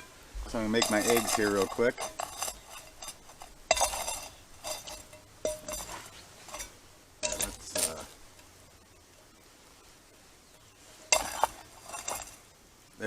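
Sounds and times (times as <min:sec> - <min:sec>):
metal cookware clanking: 0:00.0 - 0:08.3, 0:11.0 - 0:12.4.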